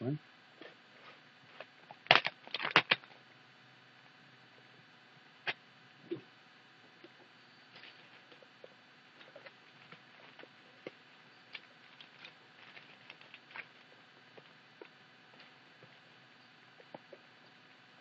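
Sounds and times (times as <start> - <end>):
knife packaging being opened: 2.1 - 3.1.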